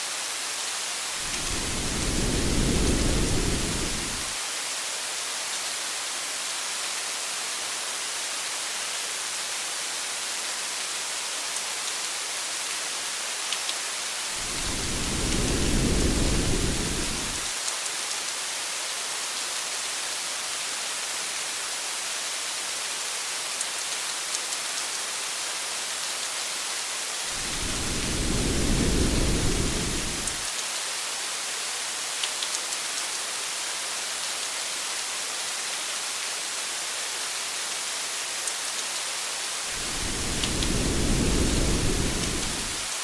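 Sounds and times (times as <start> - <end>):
heavy rain hissing: 1.0 - 4.4, 14.2 - 17.6, 27.1 - 30.5, 39.5 - 43.0
low thunder rumbles: 1.3 - 4.4, 14.4 - 17.5, 27.4 - 30.4, 39.8 - 42.9.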